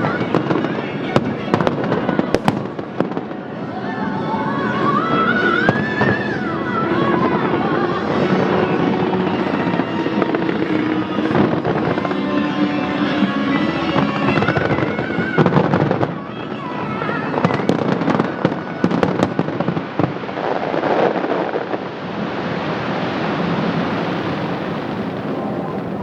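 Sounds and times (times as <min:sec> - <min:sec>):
show music: 0:00.0 - 0:16.0
fireworks bursting and crackling: 0:00.0 - 0:26.0.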